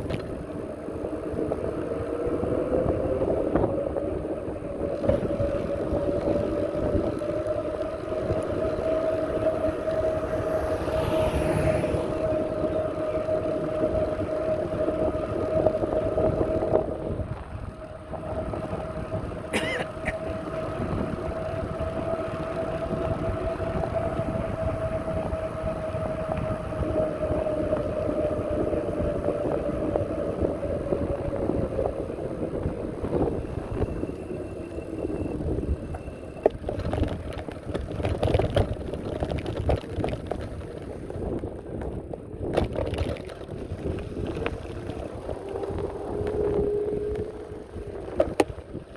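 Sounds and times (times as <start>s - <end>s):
bicycle riding rumble: 0.0s - 48.9s
steady whine: 43.7s - 48.9s.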